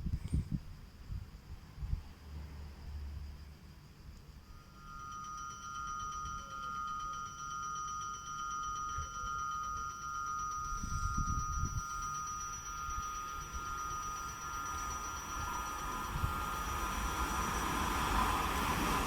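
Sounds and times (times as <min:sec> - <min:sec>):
train approaching: 0:04.4 - 0:19.0.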